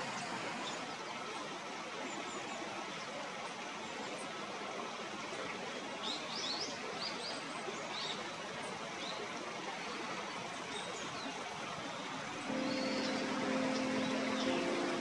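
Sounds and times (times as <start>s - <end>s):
small songbirds chirping: 6.0s - 15.0s
steady background rush: 12.3s - 15.0s.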